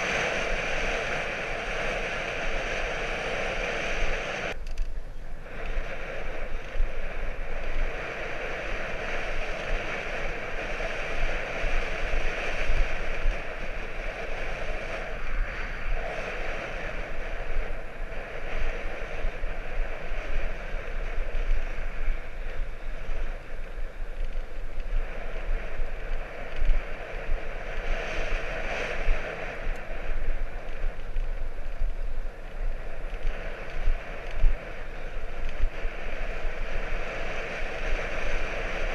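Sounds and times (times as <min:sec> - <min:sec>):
bicycle riding rush: 0:00.0 - 0:38.9
wind buffeting microphone: 0:00.0 - 0:38.9.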